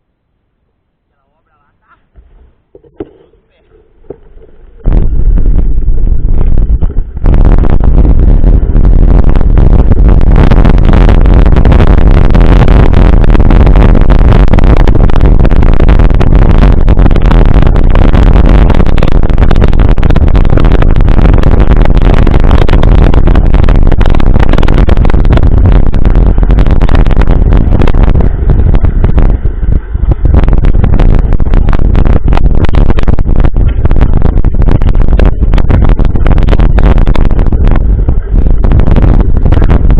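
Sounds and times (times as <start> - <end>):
wind buffeting microphone: 2.2 - 39.9.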